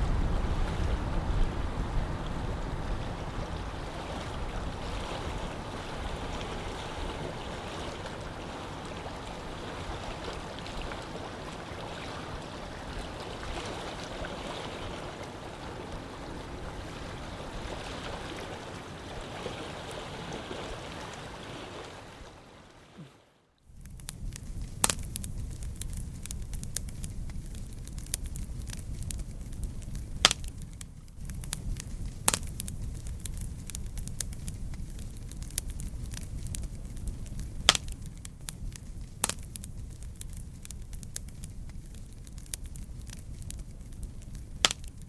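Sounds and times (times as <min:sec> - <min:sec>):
wind buffeting microphone: 0:00.0 - 0:21.4, 0:23.8 - 0:45.0
rushing water: 0:00.0 - 0:23.5
wind: 0:00.0 - 0:45.0.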